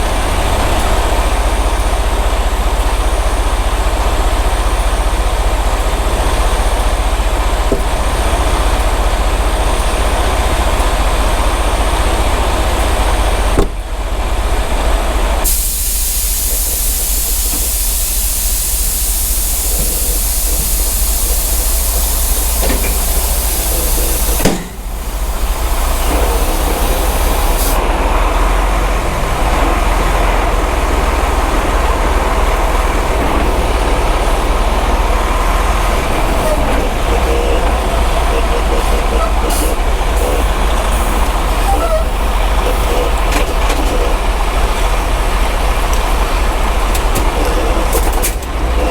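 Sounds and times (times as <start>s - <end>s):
truck diesel engine rumbling: 0.0s - 48.9s
loud steady hiss: 15.4s - 27.9s, 30.5s - 48.0s.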